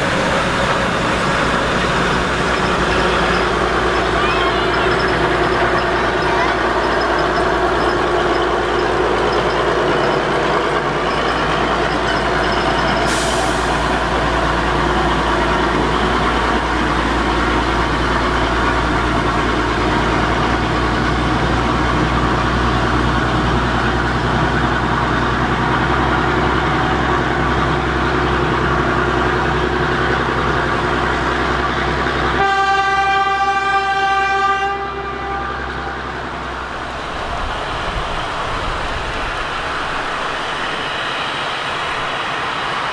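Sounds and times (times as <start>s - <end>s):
locomotive whistle: 0.0s - 42.5s
train running with low rumble: 0.0s - 42.9s.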